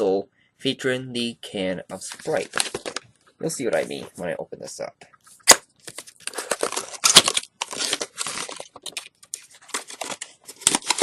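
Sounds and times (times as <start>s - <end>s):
packaging crinkling and tearing: 2.0s - 3.0s, 5.4s - 11.0s.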